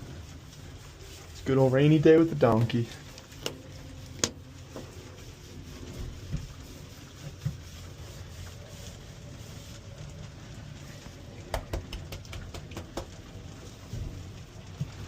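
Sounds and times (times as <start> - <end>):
steady rain: 0.0 - 15.0
sharp clicks and knocks: 3.3 - 3.6, 11.4 - 13.4.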